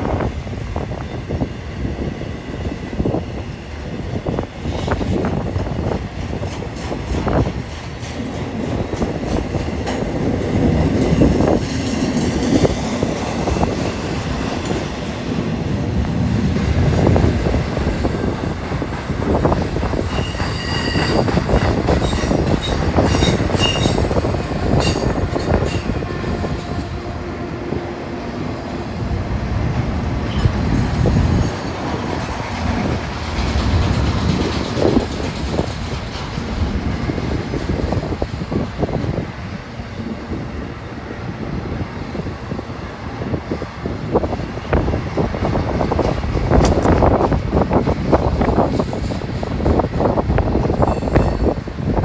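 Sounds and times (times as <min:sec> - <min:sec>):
train cars rolling past: 0:00.0 - 0:52.0
high wheel squeal: 0:19.8 - 0:24.1, 0:50.8 - 0:51.6.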